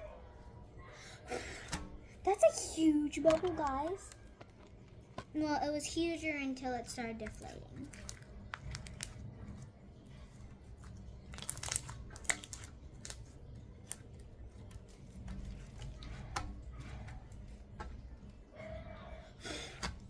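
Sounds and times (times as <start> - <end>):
small crackles and pops: 3.1 - 5.4, 6.8 - 18.4
slime being squished by hand: 7.2 - 18.2.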